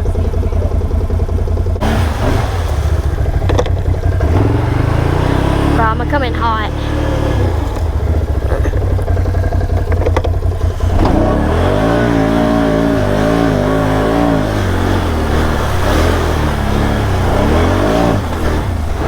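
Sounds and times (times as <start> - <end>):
atv engine revving: 0.0 - 19.0
clacks: 2.7 - 4.4, 7.7 - 11.4.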